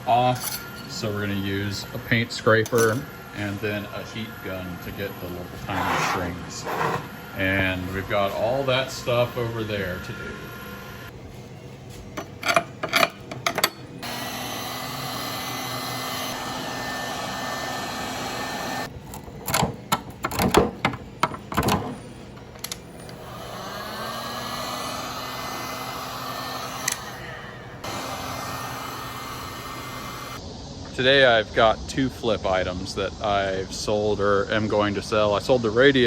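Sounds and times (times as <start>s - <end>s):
heat gun blowing: 3.3s - 11.1s, 14.0s - 18.9s, 22.7s - 30.4s.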